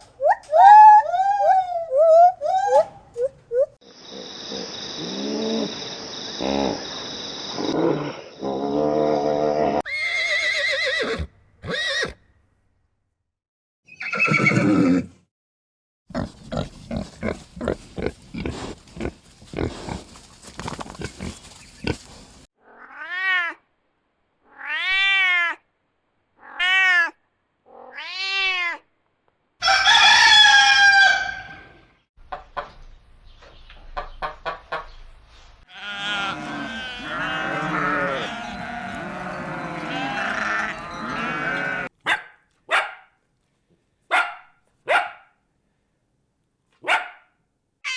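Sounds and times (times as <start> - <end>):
cat meowing: 24.5 - 25.6, 26.4 - 28.8
rooster crowing: 29.6 - 31.7, 35.8 - 41.9
overlapping chicken calls: 35.7 - 41.9
hen clucking: 35.8 - 41.9.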